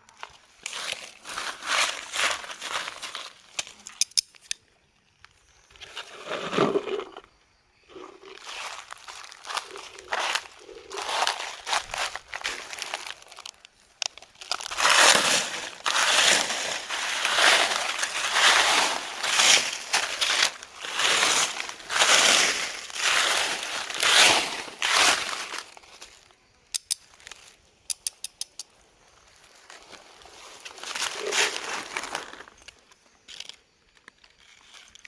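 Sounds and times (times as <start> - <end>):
crunching and rustling: 0.0 - 4.2, 5.7 - 7.3, 7.9 - 26.3, 29.2 - 35.0
quick sharp clicks: 27.8 - 28.7.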